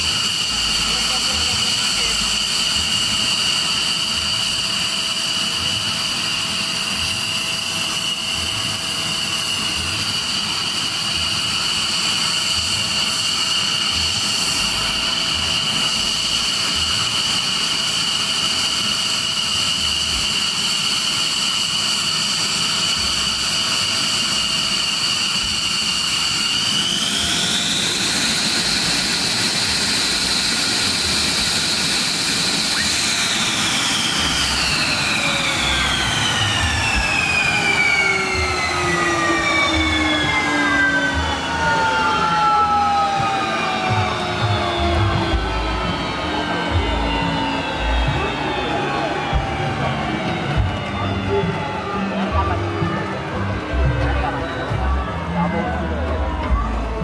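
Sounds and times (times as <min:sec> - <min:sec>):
jet turbine whining: 0:00.0 - 0:57.0.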